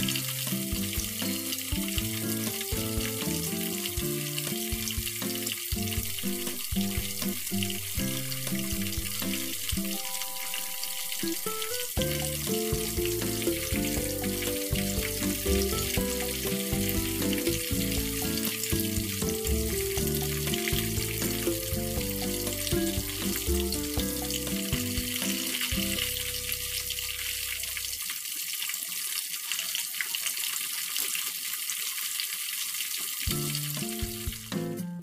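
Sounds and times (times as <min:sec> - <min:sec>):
background music: 0:00.0 - 0:27.2
food sizzling in a pan: 0:00.0 - 0:34.8.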